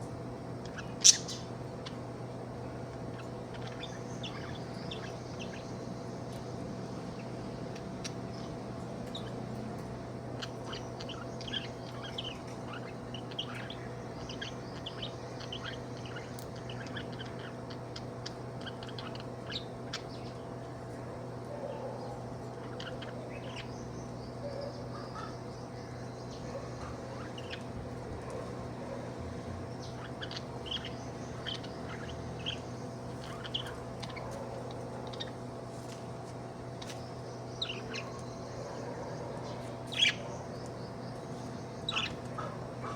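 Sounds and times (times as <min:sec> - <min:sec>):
steady low hum: 0:00.0 - 0:42.9
budgerigar chirping and chattering: 0:00.7 - 0:01.5, 0:10.4 - 0:20.1, 0:29.8 - 0:35.4, 0:39.9 - 0:40.4, 0:41.8 - 0:42.9.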